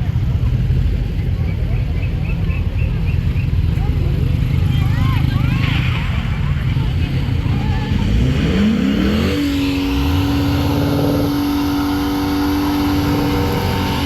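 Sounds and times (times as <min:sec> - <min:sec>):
car engine revving: 0:03.8 - 0:14.0.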